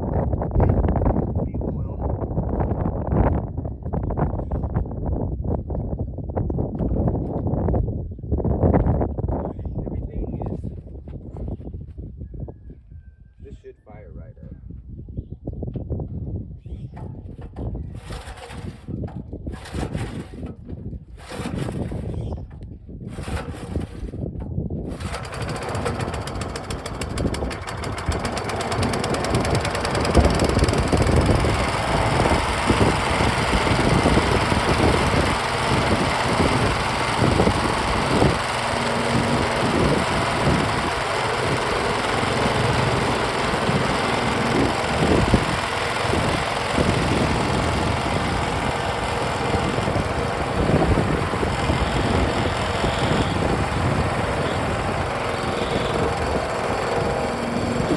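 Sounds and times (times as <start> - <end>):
small gasoline engine running: 17.9 - 20.6, 21.2 - 22.3, 23.1 - 24.2, 24.8 - 57.9.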